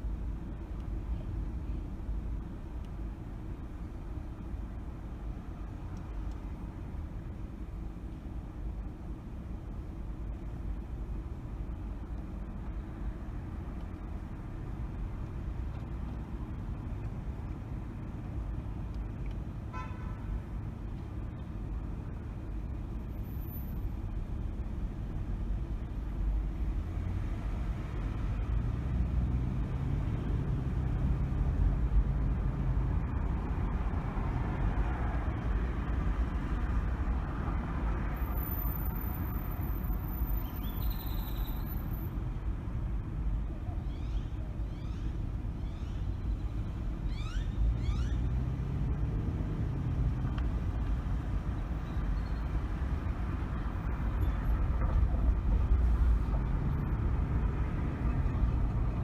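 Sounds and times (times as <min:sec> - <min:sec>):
car road and engine rumble: 0:00.0 - 0:59.0
car horn toot: 0:19.7 - 0:20.3.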